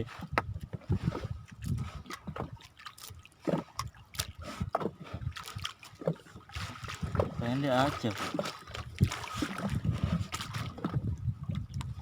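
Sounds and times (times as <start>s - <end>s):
water sloshing around a boat: 0.0s - 12.0s.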